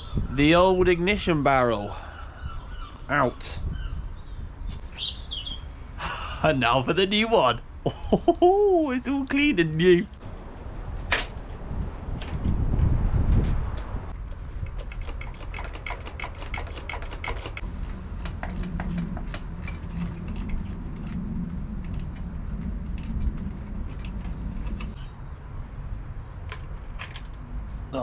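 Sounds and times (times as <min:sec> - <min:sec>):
metallic clicks of hand tools: 0:14.6 - 0:21.2.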